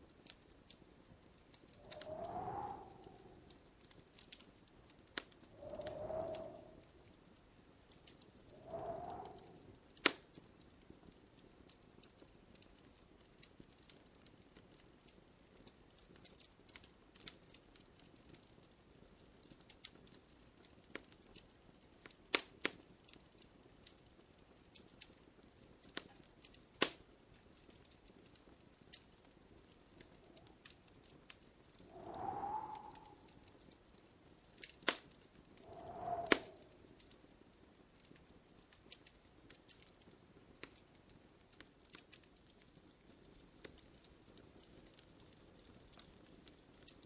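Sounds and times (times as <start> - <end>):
wood fire crackling: 0.0 - 47.0
faint hiss: 0.7 - 10.4, 29.3 - 37.3.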